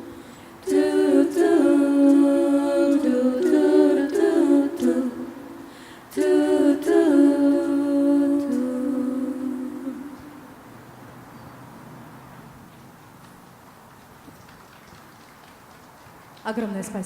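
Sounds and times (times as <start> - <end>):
vocal group singing in harmony: 0.0 - 10.7.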